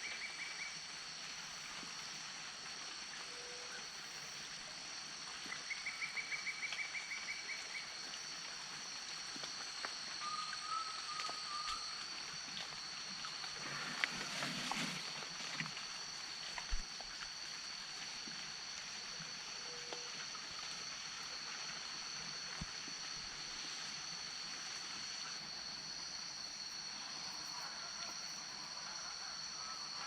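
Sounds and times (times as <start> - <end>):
high-pitched insect chorus: 0.0 - 30.0
rustling splash: 11.2 - 19.1.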